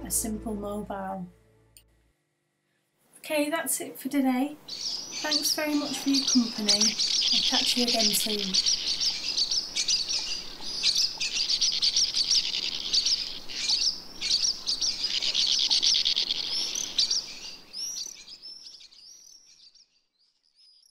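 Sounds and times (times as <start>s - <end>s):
birds chirping and twittering: 4.4s - 20.9s.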